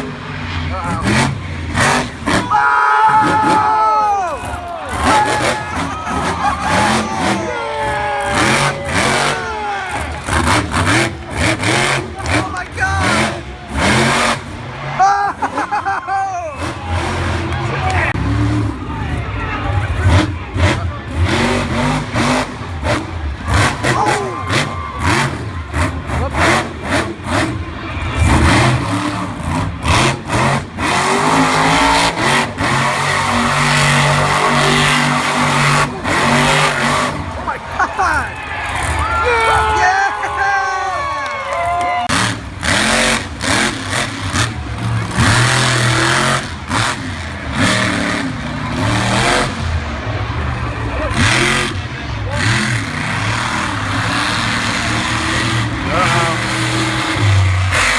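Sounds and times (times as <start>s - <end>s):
monster truck engine revving: 0.0s - 57.9s.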